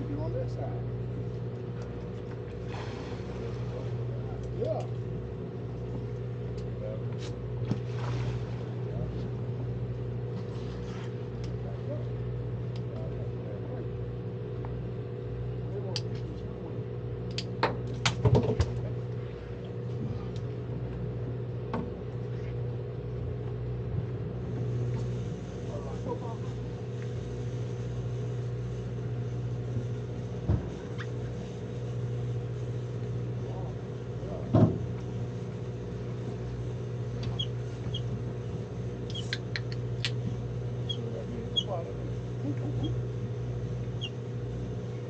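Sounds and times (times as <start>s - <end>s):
boat engine humming: 0.0s - 45.0s.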